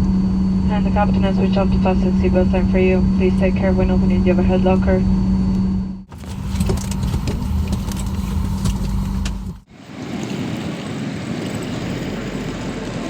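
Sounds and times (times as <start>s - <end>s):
aircraft cabin hum: 0.0s - 13.0s
seatbelt and locker clatter: 6.1s - 9.6s.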